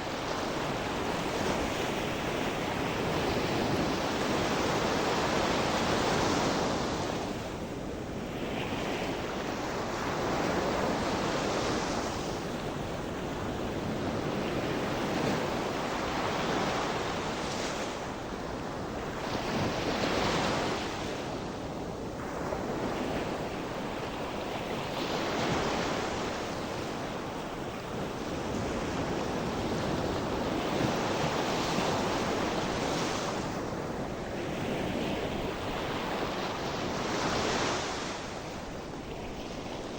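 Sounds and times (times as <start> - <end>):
wind noise on microphone: 0.0 - 39.9
waves breaking on shore: 8.2 - 39.9.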